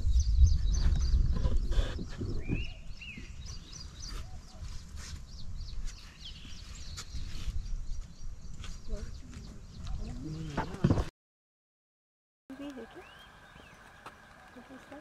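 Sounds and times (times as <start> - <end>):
whistled bird call: 12.7 - 14.8.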